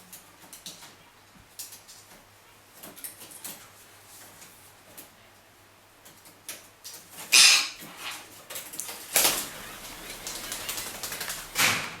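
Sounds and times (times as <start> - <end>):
parrots flapping wings: 6.9 - 12.0.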